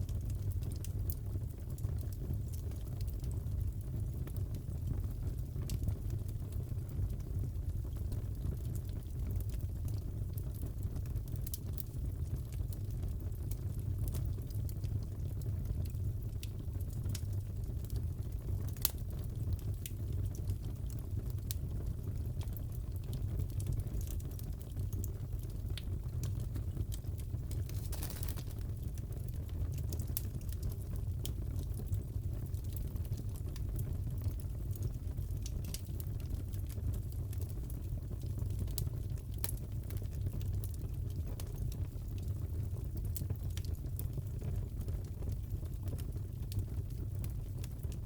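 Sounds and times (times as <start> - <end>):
fire popping and snapping: 0.0 - 48.0
fireplace crackling: 15.1 - 42.2.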